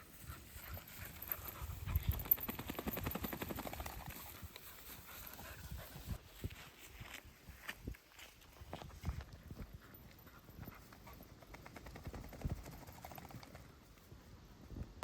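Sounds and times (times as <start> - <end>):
footsteps on stony ground: 4.4 - 10.8.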